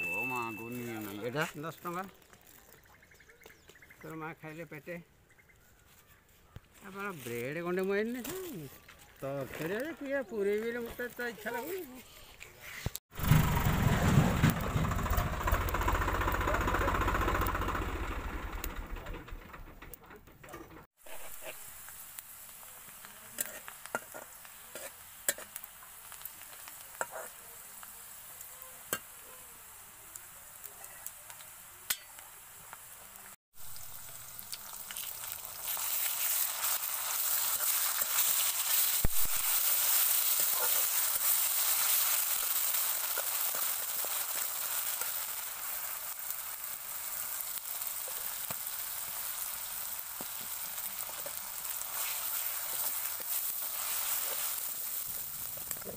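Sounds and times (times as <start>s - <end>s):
onions sizzling in a pan: 0.0s - 5.0s, 5.6s - 18.5s, 21.0s - 55.9s
tractor engine running: 13.2s - 20.8s
metal spatula scraping a pan: 23.3s - 25.6s, 27.0s - 27.4s.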